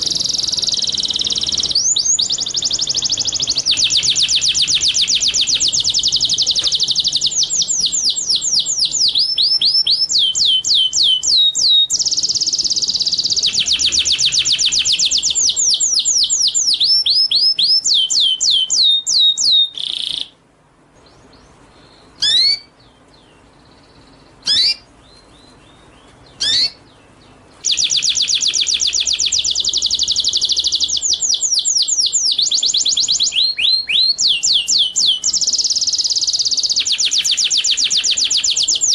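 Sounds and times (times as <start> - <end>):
songbird fast trilling runs: 27.6 - 38.9.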